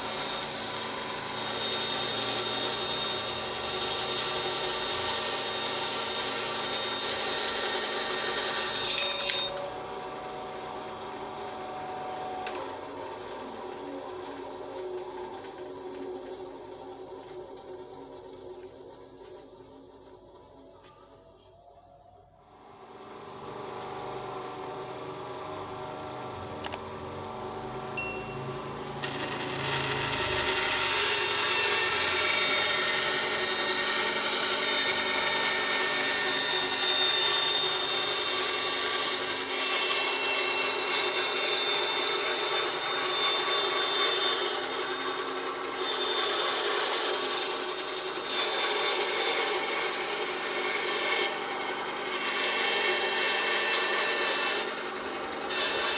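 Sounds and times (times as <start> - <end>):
saw blade rasping through wood: 0.0 - 9.6, 29.0 - 55.9
bandsaw motor hum: 0.0 - 21.3, 22.4 - 55.9.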